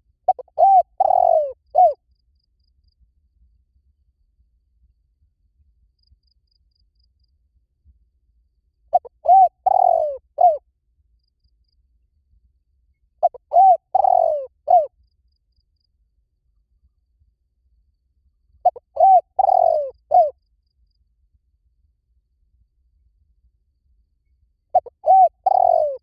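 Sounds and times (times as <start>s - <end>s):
dove cooing: 0.3s - 2.0s, 8.9s - 10.6s, 13.2s - 14.9s, 18.6s - 20.3s, 24.7s - 26.0s.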